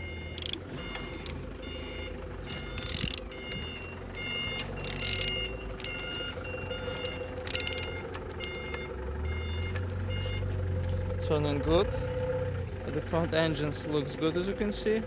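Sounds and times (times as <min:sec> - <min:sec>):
high electronic beeping: 0:00.0 - 0:10.3
engine turned over by hand: 0:00.0 - 0:14.8.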